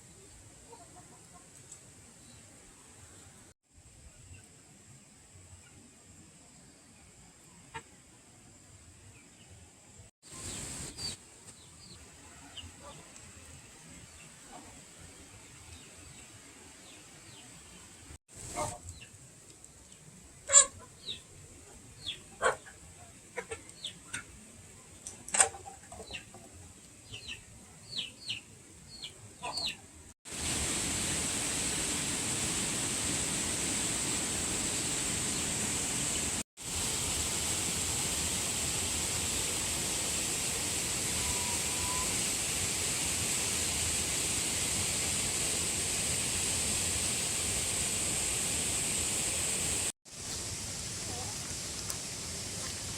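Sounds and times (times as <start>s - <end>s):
chickens clucking: 12.4s - 13.1s, 20.5s - 21.2s, 22.1s - 24.4s, 25.3s - 26.6s, 29.4s - 29.8s.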